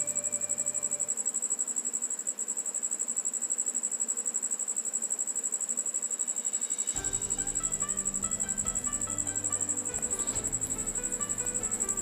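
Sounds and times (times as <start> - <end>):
cricket chirping: 0.0 - 12.0
background music: 7.0 - 12.0.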